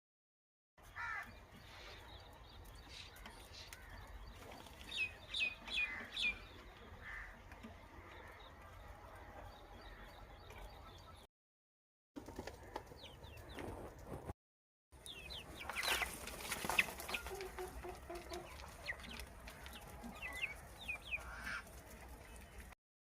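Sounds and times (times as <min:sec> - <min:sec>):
chicks peeping: 0:12.2 - 0:14.2, 0:15.0 - 0:22.7.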